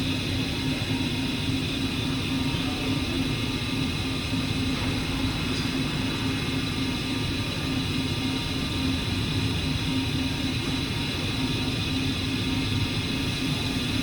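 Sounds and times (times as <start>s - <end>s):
milling machine hum: 0.0s - 14.0s.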